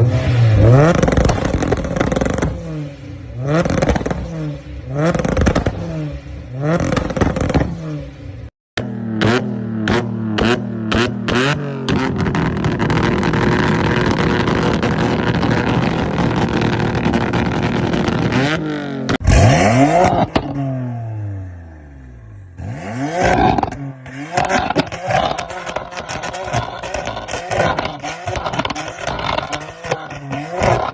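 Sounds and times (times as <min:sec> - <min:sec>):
sports car engines revving: 0:00.0 - 0:30.9
launch limiter popping and crackling: 0:00.9 - 0:02.7.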